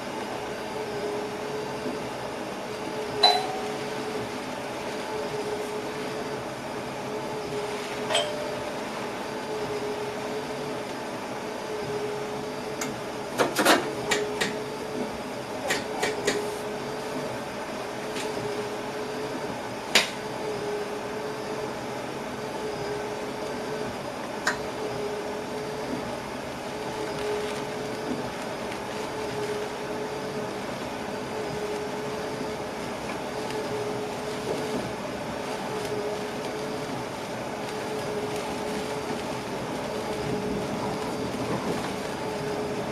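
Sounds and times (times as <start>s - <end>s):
steady mechanical hum: 0.0s - 42.9s.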